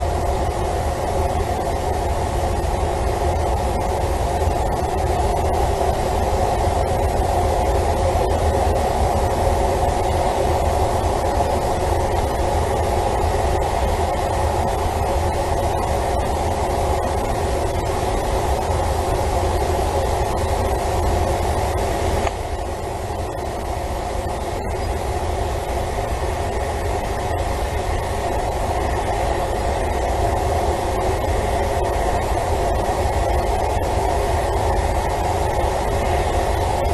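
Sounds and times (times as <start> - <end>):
hum: 0.0 - 36.9
low rumbling drone: 0.0 - 36.9.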